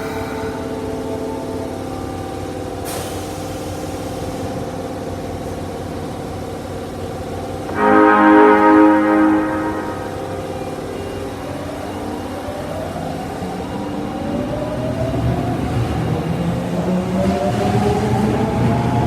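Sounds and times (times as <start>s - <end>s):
train wheels rumbling: 0.0s - 19.0s
train horn: 7.7s - 11.3s.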